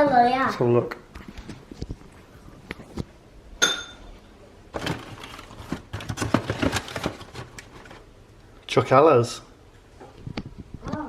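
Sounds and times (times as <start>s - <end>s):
tableware clattering: 3.6s - 4.2s
tableware clinking: 3.6s - 4.2s.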